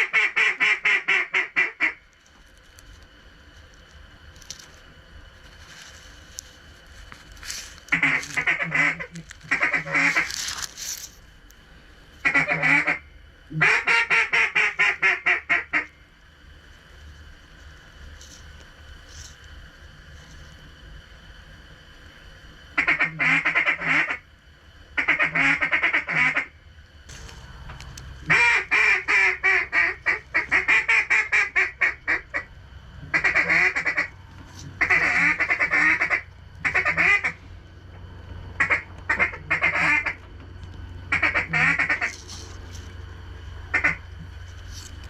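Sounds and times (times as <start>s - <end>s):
duck quacking: 0.0s - 2.0s, 7.9s - 10.3s, 12.2s - 15.9s, 22.8s - 24.2s, 25.0s - 26.5s, 28.2s - 32.5s, 33.1s - 34.1s, 34.7s - 37.4s, 38.6s - 40.2s, 41.1s - 42.1s, 43.7s - 44.0s.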